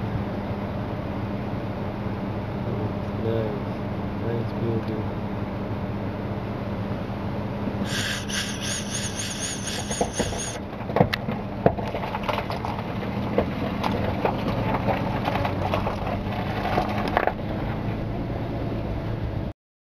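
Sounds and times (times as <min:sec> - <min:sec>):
road noise: 0:06.9 - 0:19.5
vehicle engine humming: 0:07.7 - 0:10.9
high wavering squeak: 0:07.9 - 0:10.6.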